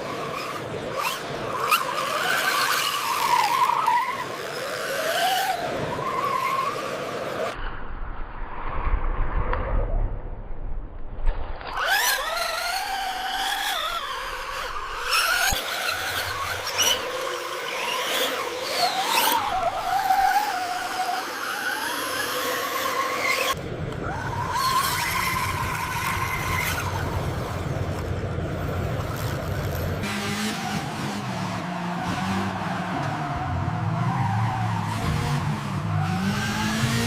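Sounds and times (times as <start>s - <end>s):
low hum: 7.6s - 11.8s
small electric motors whining: 11.7s - 28.0s.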